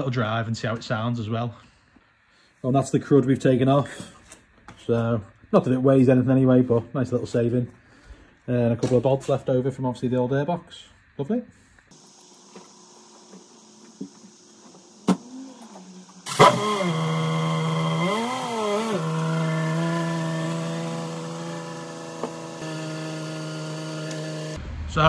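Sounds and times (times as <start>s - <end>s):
engine rev: 15.1s - 25.0s
car engine starting and idling: 15.2s - 20.5s.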